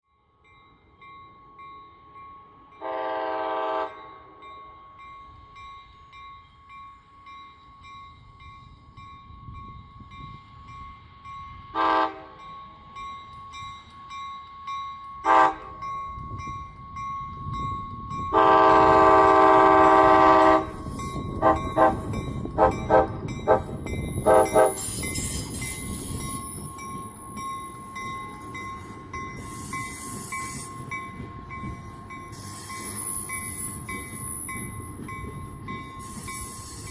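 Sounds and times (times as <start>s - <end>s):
locomotive and wheels rumbling: 0.4s - 36.9s
train horn blasts: 2.8s - 4.2s, 11.7s - 12.4s, 15.2s - 15.8s, 18.3s - 20.8s, 21.4s - 24.9s.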